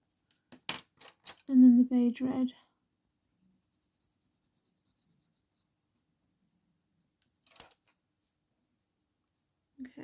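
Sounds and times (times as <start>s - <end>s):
colour pencil scratching on paper: 2.7s - 6.2s.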